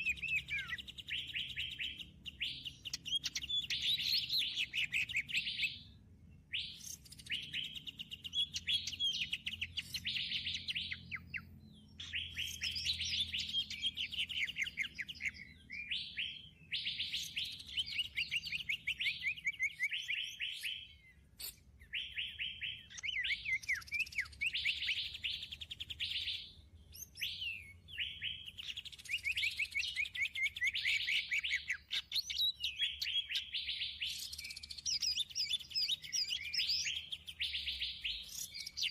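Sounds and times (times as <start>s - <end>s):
songbird trilling: 0.0s - 5.9s, 6.5s - 38.9s.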